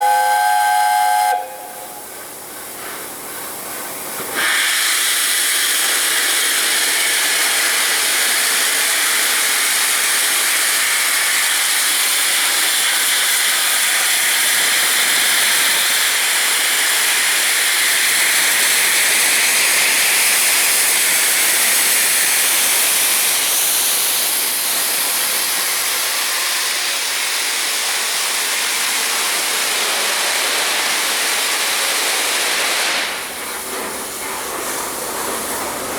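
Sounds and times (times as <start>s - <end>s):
steam locomotive whistle: 0.0s - 2.3s
steam hissing: 0.0s - 35.9s.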